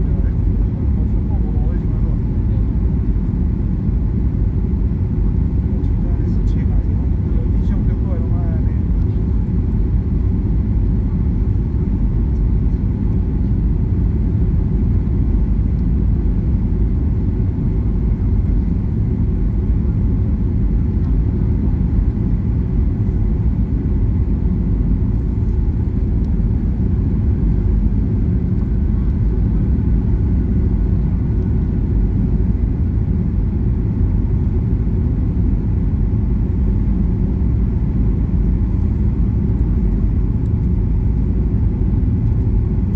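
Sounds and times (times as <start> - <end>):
airliner cabin engine rumble: 0.0 - 42.9.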